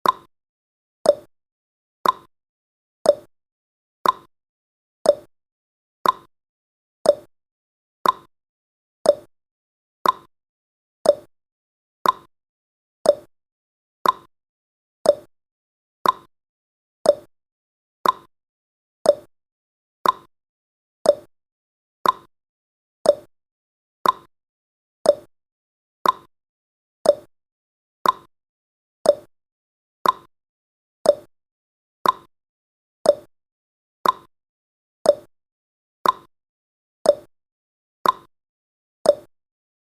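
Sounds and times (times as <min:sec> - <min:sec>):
timer ticking: 0:00.0 - 0:00.3, 0:01.1 - 0:01.3, 0:02.0 - 0:02.3, 0:03.1 - 0:03.3, 0:04.0 - 0:04.3, 0:05.1 - 0:05.3, 0:06.0 - 0:06.3, 0:07.0 - 0:07.3, 0:08.0 - 0:08.3, 0:09.0 - 0:09.3, 0:10.0 - 0:10.3, 0:11.0 - 0:11.3, 0:12.0 - 0:12.3, 0:13.0 - 0:13.3, 0:14.0 - 0:14.3, 0:15.0 - 0:15.3, 0:16.0 - 0:16.3, 0:17.0 - 0:17.3, 0:18.0 - 0:18.3, 0:19.0 - 0:19.3, 0:20.0 - 0:20.3, 0:21.0 - 0:21.3, 0:22.0 - 0:22.3, 0:23.0 - 0:23.3, 0:24.0 - 0:24.3, 0:25.0 - 0:25.3, 0:26.0 - 0:26.3, 0:27.0 - 0:27.3, 0:28.0 - 0:28.3, 0:29.0 - 0:29.3, 0:30.0 - 0:30.3, 0:31.0 - 0:31.3, 0:32.0 - 0:32.3, 0:33.0 - 0:33.3, 0:34.0 - 0:34.3, 0:35.1 - 0:35.3, 0:36.0 - 0:36.3, 0:37.1 - 0:37.3, 0:38.0 - 0:38.3, 0:39.1 - 0:39.3.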